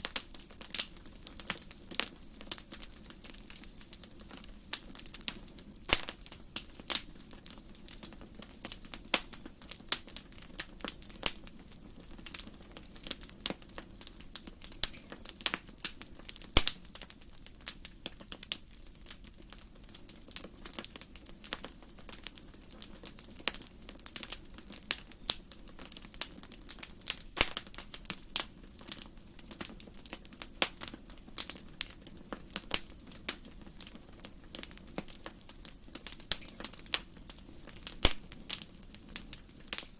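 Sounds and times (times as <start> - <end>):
soft steady hiss: 0.0 - 39.9
wood fire crackling: 0.0 - 39.9.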